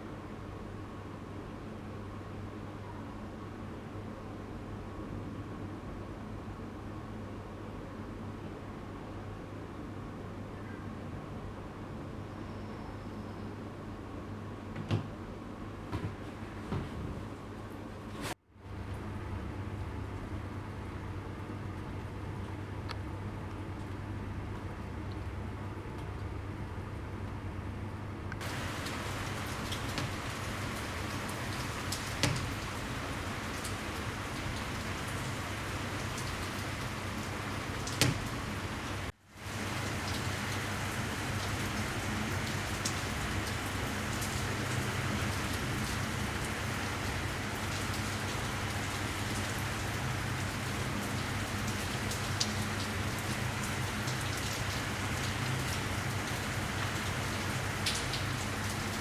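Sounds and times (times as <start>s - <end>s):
steady rain falling: 28.4s - 59.0s.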